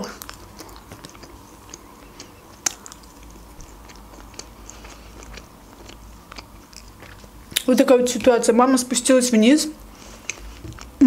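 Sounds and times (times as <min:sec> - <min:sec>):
person chewing food: 0:00.0 - 0:08.4, 0:09.8 - 0:11.0
wet mouth clicks and smacks: 0:00.2 - 0:07.7.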